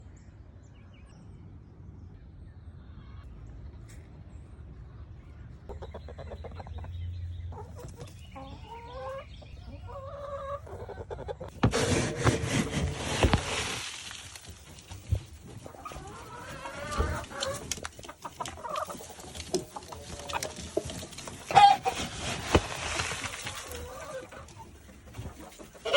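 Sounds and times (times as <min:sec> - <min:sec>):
chickens clucking: 0:05.7 - 0:25.9.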